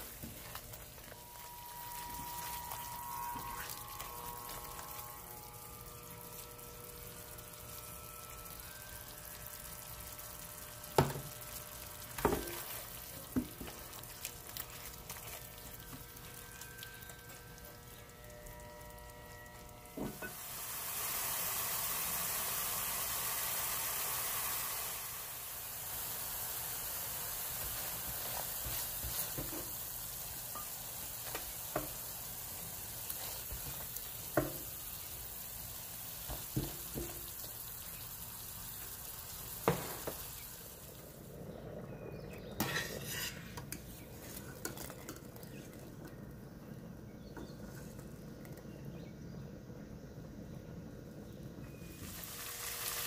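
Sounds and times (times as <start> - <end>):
paste sizzling in a frying pan: 0.0 - 41.2, 41.8 - 45.2, 51.7 - 53.0
ladle scraping a pan: 42.5 - 45.2.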